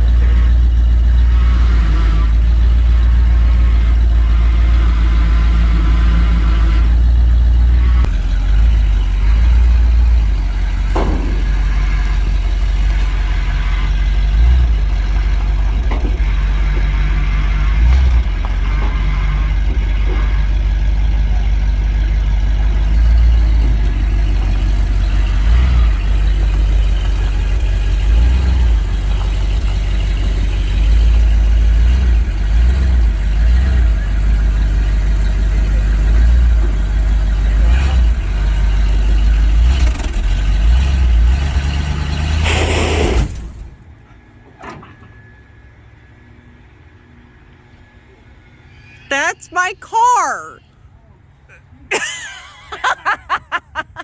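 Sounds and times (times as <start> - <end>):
pickup engine rumbling: 0.0 - 41.4.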